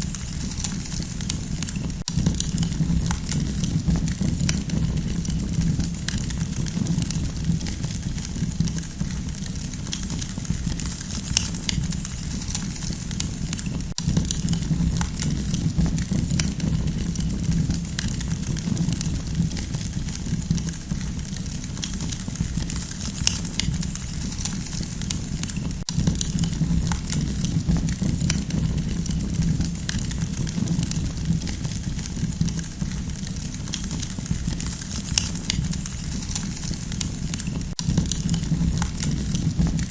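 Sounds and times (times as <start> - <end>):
campfire burning: 0.0 - 39.9
fire crackling and popping: 0.0 - 39.9.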